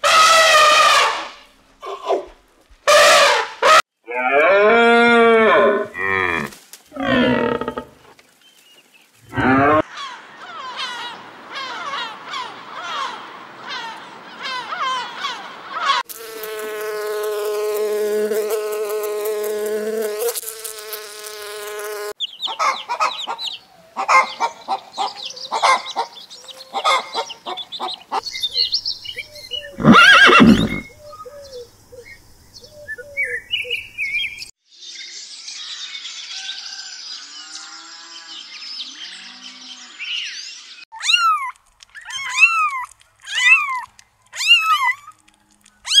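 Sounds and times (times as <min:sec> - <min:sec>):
loud animal call: 0:02.9 - 0:08.0, 0:09.3 - 0:16.0, 0:29.6 - 0:31.0
birds chirping: 0:06.9 - 0:16.0, 0:22.2 - 0:46.0
chickens clucking: 0:22.3 - 0:28.2
kittens meowing: 0:41.0 - 0:45.2.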